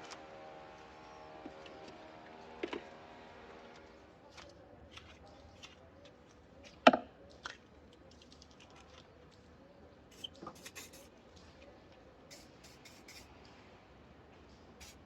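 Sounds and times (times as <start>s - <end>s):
steady multi-tone hum: 12.3s - 13.3s.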